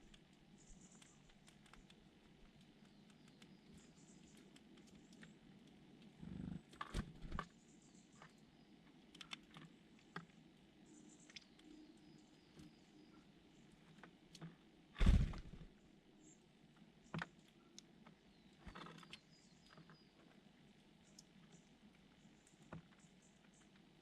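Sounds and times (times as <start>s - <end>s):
small taps and clicks: 0.0s - 6.1s, 8.2s - 10.4s.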